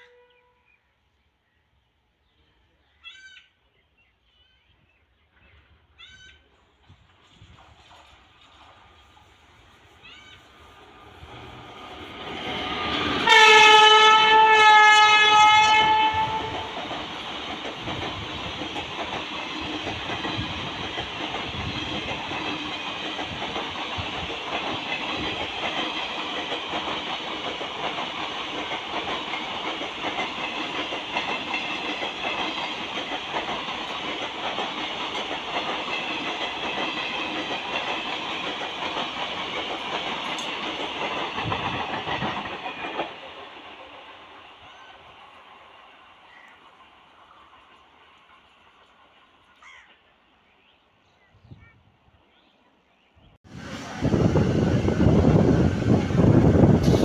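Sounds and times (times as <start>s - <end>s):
train wheels rolling on rails: 6.5s - 49.5s, 53.4s - 57.0s
locomotive horn blasts: 13.2s - 16.7s.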